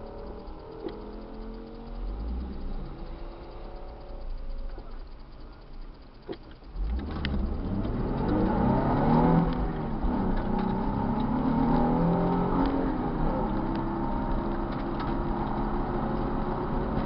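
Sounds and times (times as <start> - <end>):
car engine revving: 0.0 - 17.0
sharp clicks: 0.0 - 17.0.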